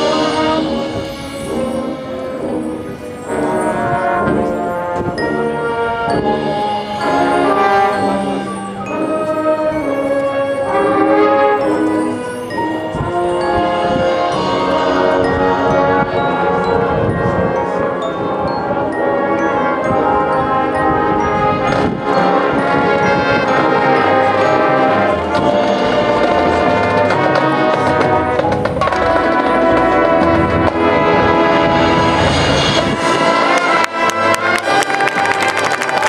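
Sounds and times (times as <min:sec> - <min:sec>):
brass and woodwind chords: 0:00.0 - 0:36.0
mallet percussion ringing: 0:00.1 - 0:30.4
drums: 0:25.3 - 0:35.0.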